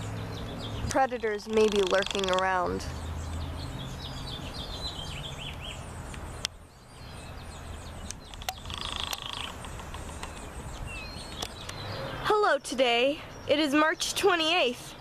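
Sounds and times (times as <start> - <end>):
small birds chirping: 0.0 - 15.0
sharp clicks: 0.9 - 2.8, 8.0 - 11.8.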